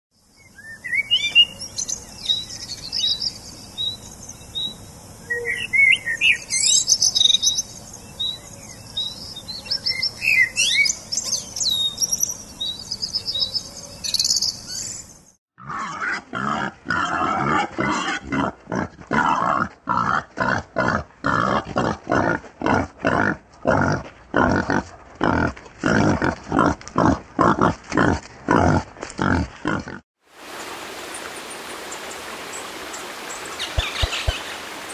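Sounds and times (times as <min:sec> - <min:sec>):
bird singing and chirping: 0:00.4 - 0:15.1.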